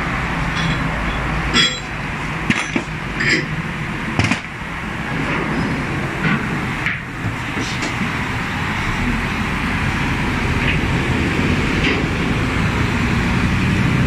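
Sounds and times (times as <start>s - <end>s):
low machine hum: 0.0s - 4.2s
metal objects clinking: 0.5s - 3.6s.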